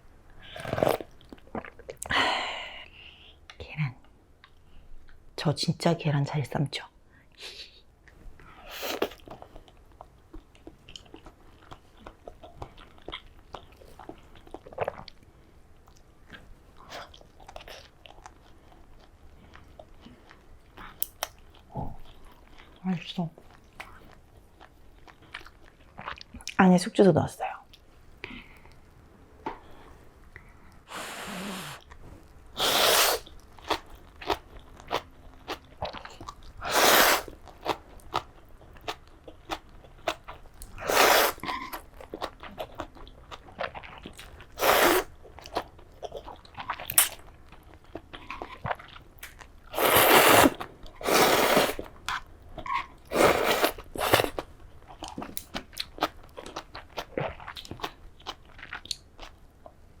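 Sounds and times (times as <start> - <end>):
loud slurping of noodles: 30.9 - 31.8, 32.6 - 33.2, 36.6 - 37.3, 40.8 - 41.4, 44.6 - 45.1, 49.7 - 51.9, 53.1 - 54.4.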